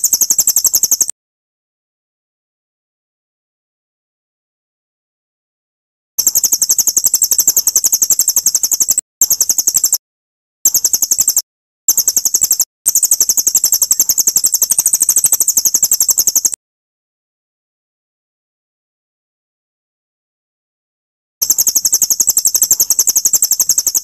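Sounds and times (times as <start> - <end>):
bird's high-pitched trill: 0.0 - 1.1, 6.2 - 10.0, 10.7 - 16.6, 21.4 - 24.0.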